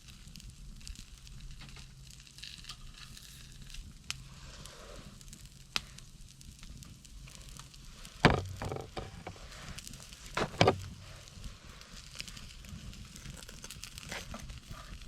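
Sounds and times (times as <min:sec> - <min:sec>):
wood fire crackling: 0:00.0 - 0:15.0
loud clattering knocks: 0:08.3 - 0:09.3, 0:10.4 - 0:10.9.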